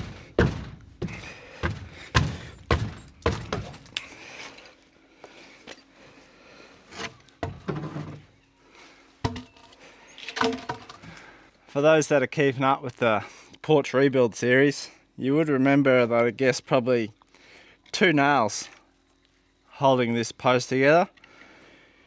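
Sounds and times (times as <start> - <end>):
heavy thuds on timber: 0.0 - 4.2, 7.4 - 8.0, 9.2 - 9.6.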